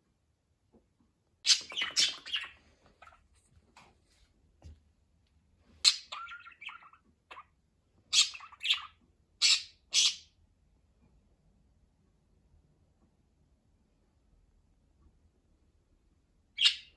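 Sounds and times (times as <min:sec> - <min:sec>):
budgerigar chirping and chattering: 0:01.4 - 0:03.2, 0:05.8 - 0:10.4, 0:16.6 - 0:16.9
budgerigar harsh squawks: 0:01.5 - 0:02.6, 0:08.1 - 0:10.3.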